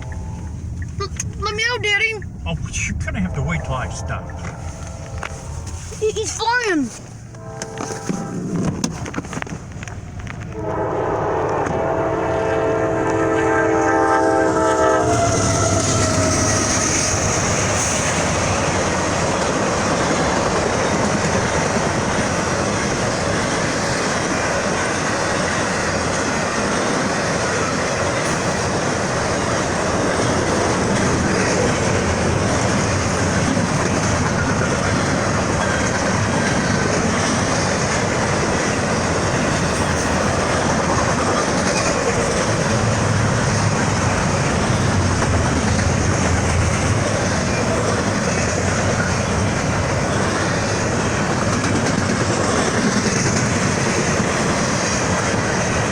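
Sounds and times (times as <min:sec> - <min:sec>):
train wheels clattering on rails: 0:02.5 - 0:12.0, 0:13.0 - 0:55.9
locomotive air horn: 0:03.2 - 0:06.0, 0:07.3 - 0:08.8, 0:10.5 - 0:17.2.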